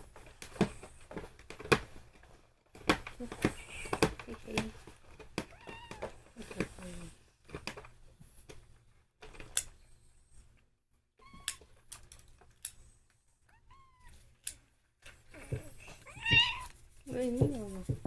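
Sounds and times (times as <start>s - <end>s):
cat meowing quietly: 11.2s - 11.7s, 13.5s - 14.2s, 15.6s - 16.8s.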